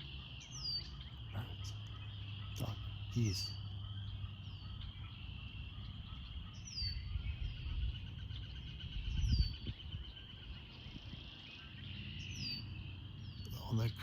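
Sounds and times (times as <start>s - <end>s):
bird trilling: 0.0s - 14.0s
wind on microphone: 6.1s - 11.4s.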